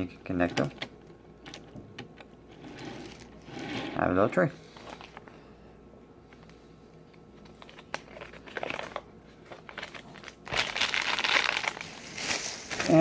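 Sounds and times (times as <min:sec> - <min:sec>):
plastic packaging crinkling: 0:07.5 - 0:13.0.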